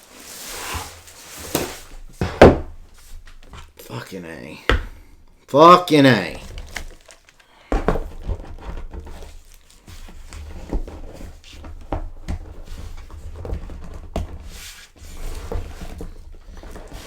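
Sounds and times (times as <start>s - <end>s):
toy figure handling clicks and knocks: 6.2s - 7.7s.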